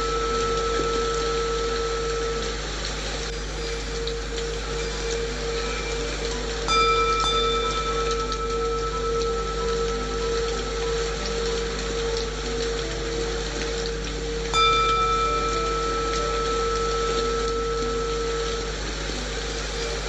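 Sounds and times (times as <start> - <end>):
low held tone: 0.0 - 20.0
rain-like white noise: 0.0 - 20.0
singing bowl ringing: 0.0 - 20.0.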